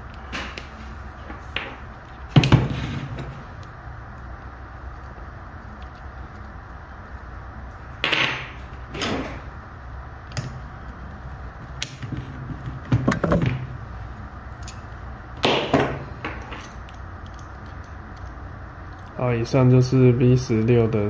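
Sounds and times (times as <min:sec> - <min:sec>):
metal parts clinking and scraping: 0:16.4 - 0:19.1.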